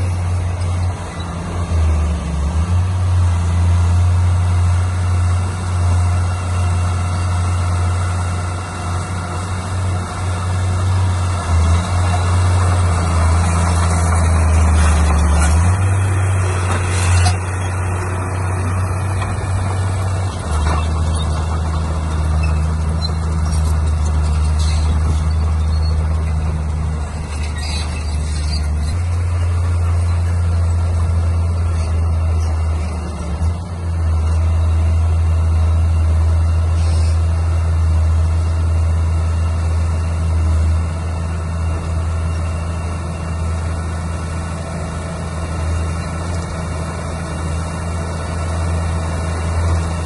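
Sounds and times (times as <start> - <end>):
diesel construction machinery running: 0.0 - 50.0.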